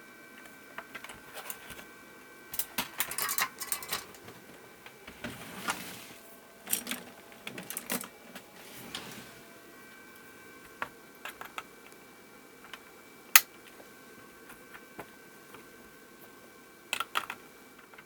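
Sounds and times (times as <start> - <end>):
hand tools clicking and clattering: 2.6 - 4.4.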